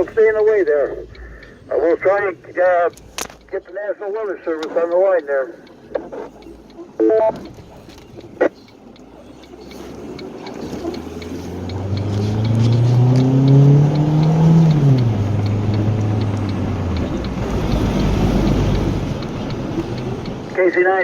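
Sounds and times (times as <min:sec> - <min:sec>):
vehicle engine revving: 0:06.0 - 0:20.6.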